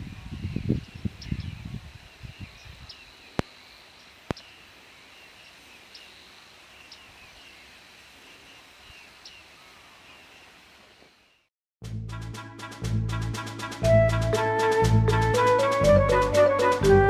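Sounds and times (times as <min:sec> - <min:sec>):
small birds calling: 0:00.0 - 0:11.5.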